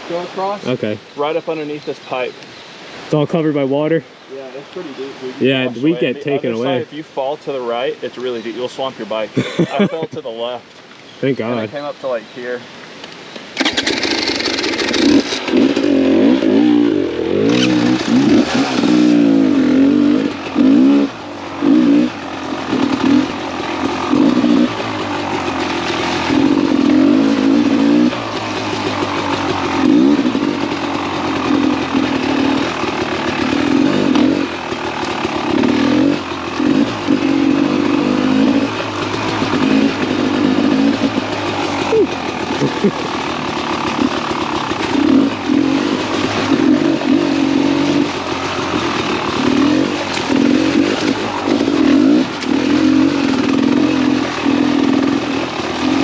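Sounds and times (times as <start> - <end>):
motorcycle engine revving: 13.6 - 56.0.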